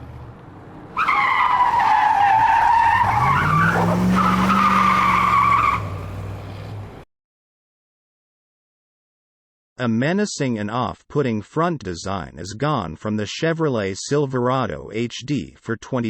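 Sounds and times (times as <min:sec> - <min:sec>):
car engine: 0:00.0 - 0:07.0
tires squealing: 0:00.7 - 0:06.8.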